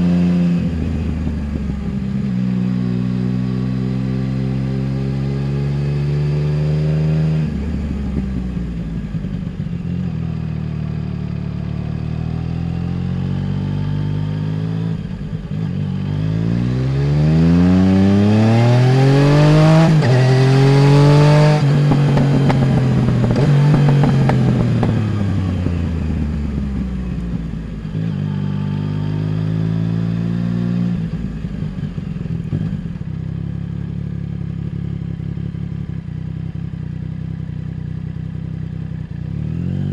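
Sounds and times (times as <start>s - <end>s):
motorcycle engine revving: 0.0s - 39.9s
exhaust crackling: 19.0s - 26.4s.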